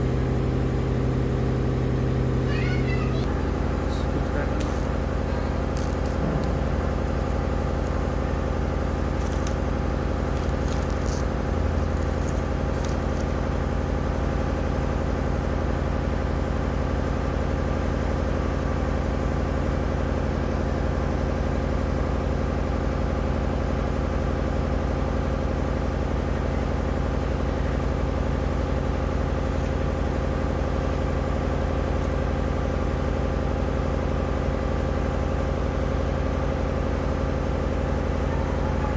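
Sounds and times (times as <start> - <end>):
machine hum: 0.0 - 24.6.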